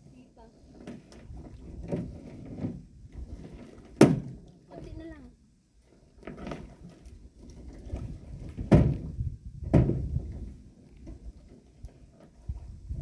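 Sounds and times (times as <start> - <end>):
hollow thumps of canoe hull: 0.8 - 4.5, 6.2 - 12.4.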